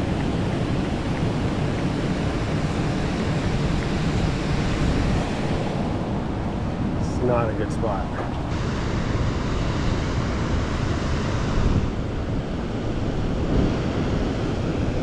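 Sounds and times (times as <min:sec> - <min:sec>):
fast-flowing water: 0:00.0 - 0:08.6
wind buffeting microphone: 0:00.0 - 0:15.0.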